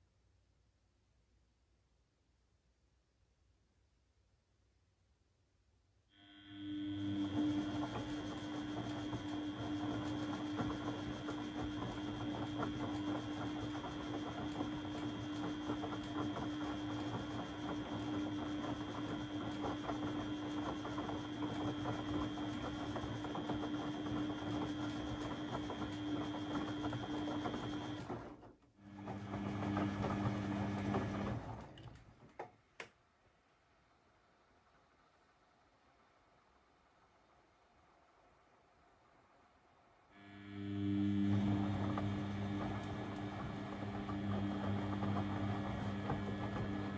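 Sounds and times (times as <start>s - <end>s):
washing machine motor whirring: 6.2s - 32.5s, 40.2s - 46.9s.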